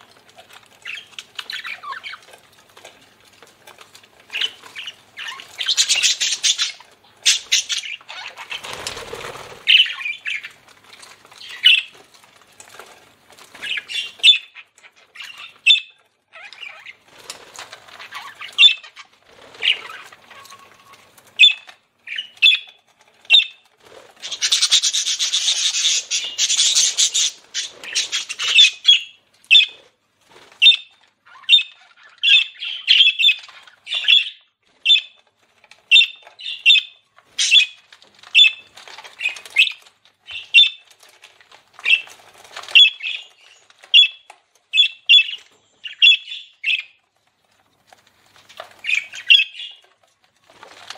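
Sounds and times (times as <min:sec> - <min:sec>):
budgerigars chirping: 0:04.3 - 0:10.5, 0:11.4 - 0:11.9, 0:13.6 - 0:17.0, 0:18.0 - 0:23.6, 0:24.2 - 0:29.8, 0:30.6 - 0:35.2, 0:35.9 - 0:37.8, 0:38.4 - 0:38.6, 0:39.2 - 0:40.8, 0:42.7 - 0:43.3, 0:43.9 - 0:47.0, 0:48.8 - 0:49.8.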